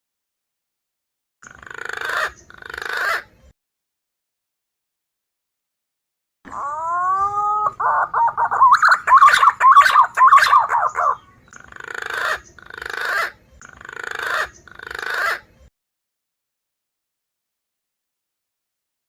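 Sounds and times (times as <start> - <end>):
harsh rasping bird calls: 1.4 - 3.4, 6.5 - 15.6
pigeon whistled warbling calls: 6.5 - 15.5.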